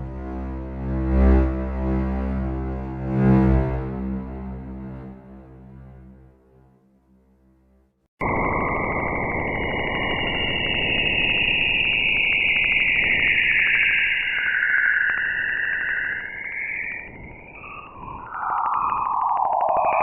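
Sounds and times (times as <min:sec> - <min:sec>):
fast even pulsing: 0:08.2 - 0:20.0
high wavering whistle: 0:08.3 - 0:20.0.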